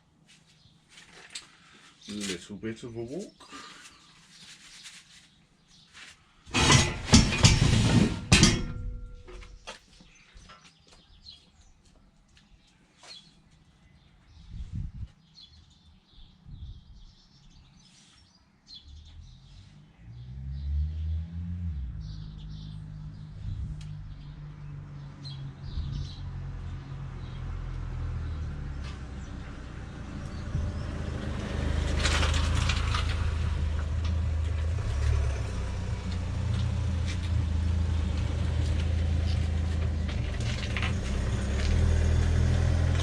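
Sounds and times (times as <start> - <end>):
loud clatter: 6.5 - 9.6, 30.6 - 35.4, 38.1 - 42.0
birds chirping: 21.8 - 32.0
vehicle engine starting and idling: 28.1 - 43.0.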